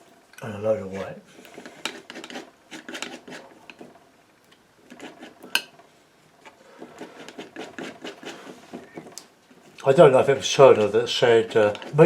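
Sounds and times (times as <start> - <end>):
palette knife scraping: 1.3 - 4.0, 4.8 - 5.6, 6.6 - 9.6, 10.4 - 12.0.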